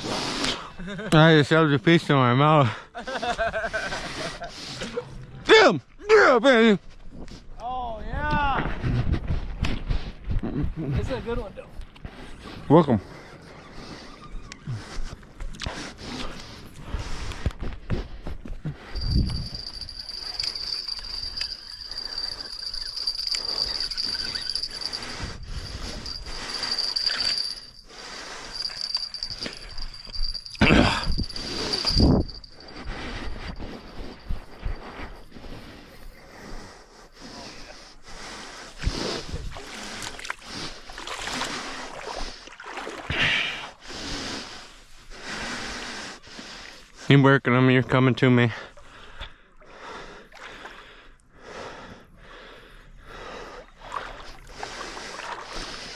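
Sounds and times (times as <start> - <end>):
insect trilling: 19.0 - 32.9
river water splashing and sloshing: 39.5 - 43.1, 50.3 - 50.8, 53.5 - 55.9.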